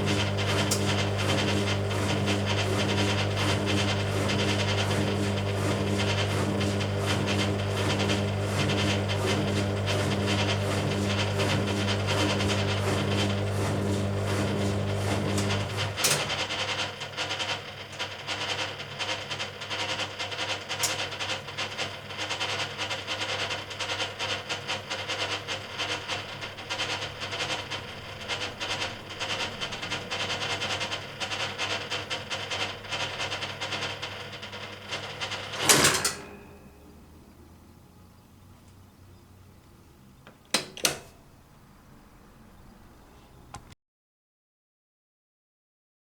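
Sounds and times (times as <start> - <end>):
washing machine clicking and rattling: 0.0 - 37.2, 40.0 - 41.6
washing machine motor hum: 0.0 - 43.7
loud clunk: 35.6 - 36.7.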